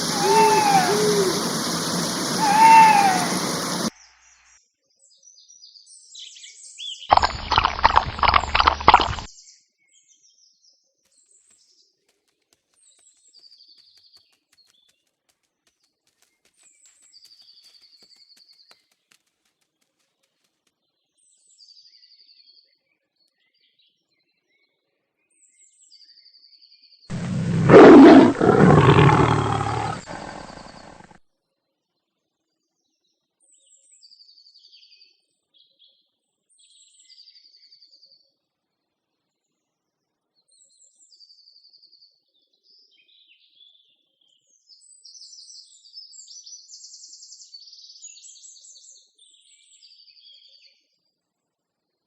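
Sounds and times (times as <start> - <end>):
tiger roaring: 0.0 - 3.9, 27.1 - 31.2
faint bird chirps: 0.0 - 4.4, 27.1 - 31.1.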